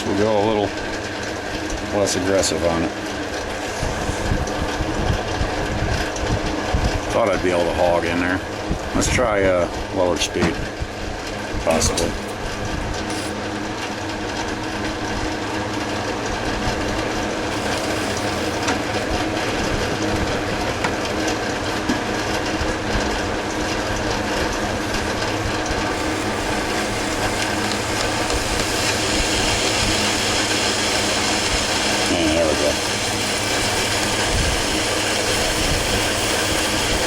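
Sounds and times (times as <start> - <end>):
metal lathe cutting: 0.0 - 4.4, 11.8 - 37.0.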